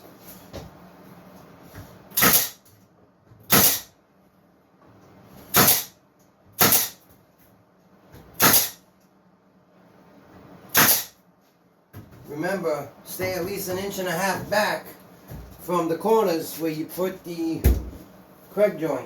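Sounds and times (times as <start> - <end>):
cordless nailer firing brads: 2.2 - 2.6, 3.5 - 3.9, 5.5 - 6.0, 6.6 - 7.0, 8.4 - 8.8, 10.7 - 11.2.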